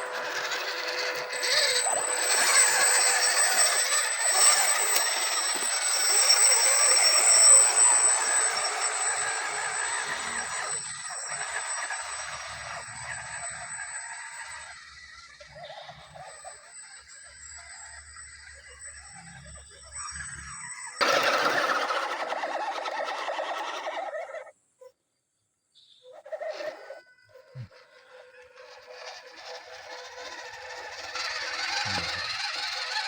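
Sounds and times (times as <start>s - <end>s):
toy car electric motor whining: 0.0s - 24.7s, 26.1s - 33.0s.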